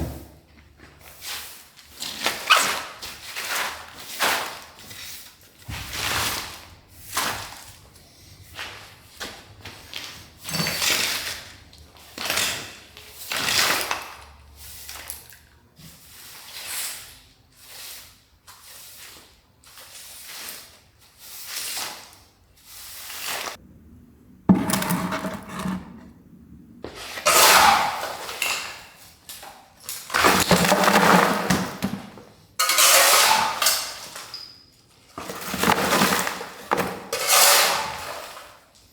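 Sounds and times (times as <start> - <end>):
rubble scraping: 24.4 - 26.2, 30.1 - 33.6.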